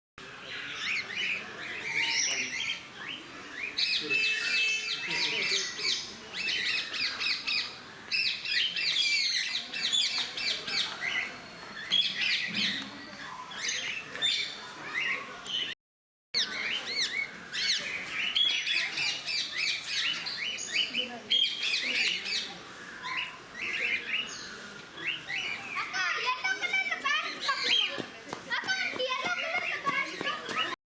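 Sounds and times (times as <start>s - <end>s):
parrots chirping and squawking: 16.4s - 25.9s.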